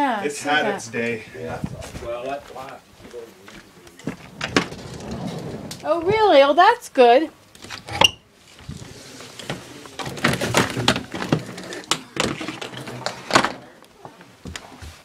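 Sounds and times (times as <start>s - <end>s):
objects being handled and bumped: 7.6s - 15.0s.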